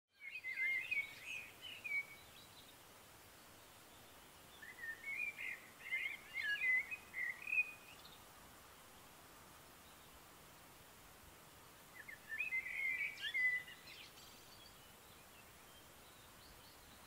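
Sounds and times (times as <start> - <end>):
faint outdoor hiss: 0.1 - 17.0
songbird warbling: 0.2 - 2.6, 4.0 - 8.2, 11.9 - 14.8.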